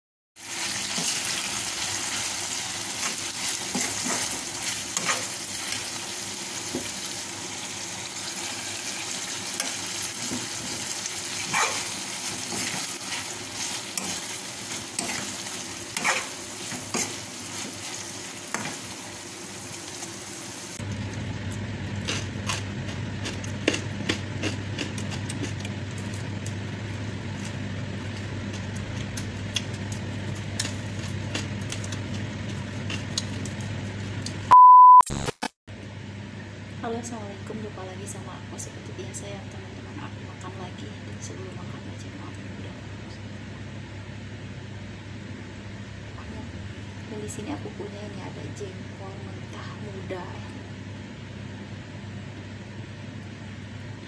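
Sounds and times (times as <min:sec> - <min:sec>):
sambal sizzling in a wok: 0:00.4 - 0:20.8
steady low hum: 0:02.8 - 0:34.5, 0:35.7 - 0:54.0
metal spoon scraping a pan: 0:15.9 - 0:17.2.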